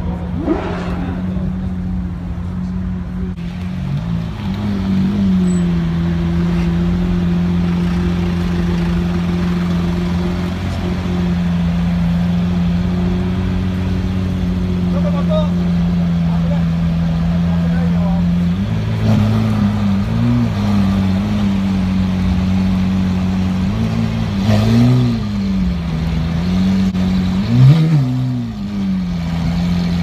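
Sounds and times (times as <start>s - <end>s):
car engine running at low speed: 0.0s - 30.0s.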